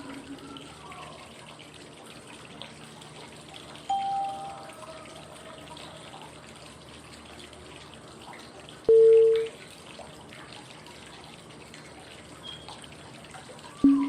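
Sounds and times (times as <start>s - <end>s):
flowing water: 0.0s - 14.0s
short cue tone: 3.9s - 4.7s, 8.9s - 9.5s.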